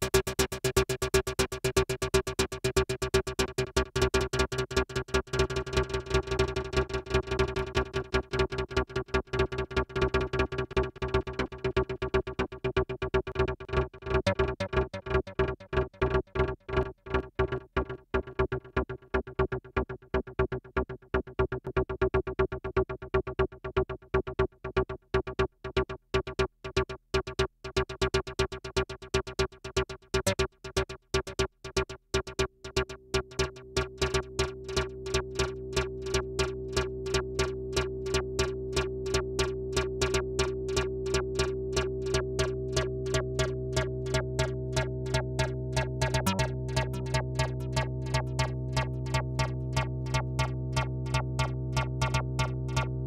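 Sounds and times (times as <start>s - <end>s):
synthesizer sequence: 40.8s - 53.0s.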